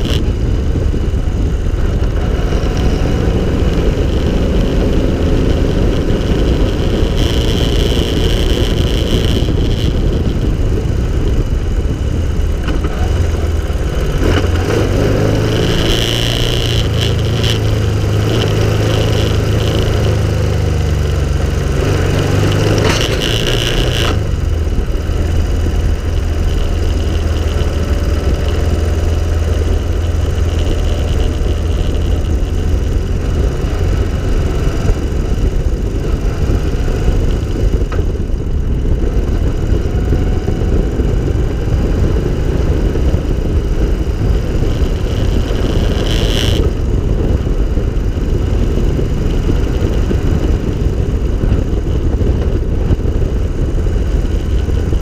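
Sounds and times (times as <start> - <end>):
car engine running: 0.0 - 55.0
wind rumble on microphone: 0.0 - 55.0.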